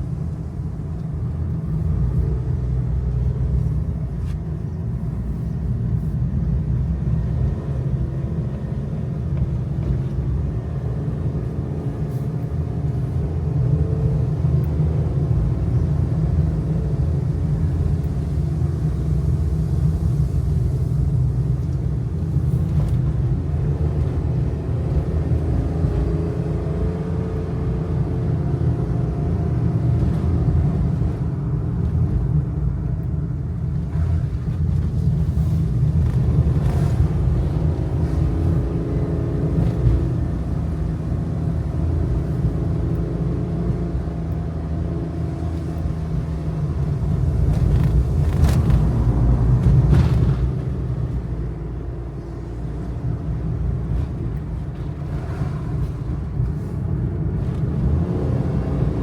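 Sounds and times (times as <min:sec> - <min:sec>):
road and tyre rumble: 0:00.0 - 0:59.0.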